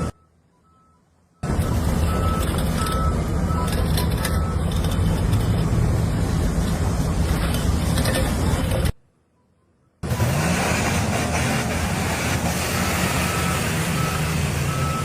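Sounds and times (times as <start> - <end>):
reversing alarm beeping: 0.0 - 4.9, 12.7 - 15.0
heavy vehicle engine rumble: 0.0 - 15.0.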